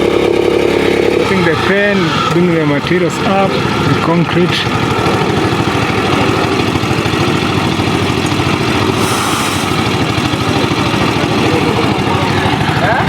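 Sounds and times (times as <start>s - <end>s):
machinery engines throbbing: 0.0s - 13.0s
short hiss: 9.0s - 9.8s.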